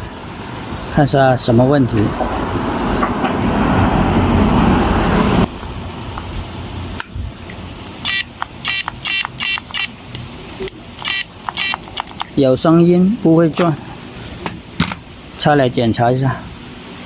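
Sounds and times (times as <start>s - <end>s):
short high motor chirps: 8.0s - 9.9s, 11.0s - 11.9s.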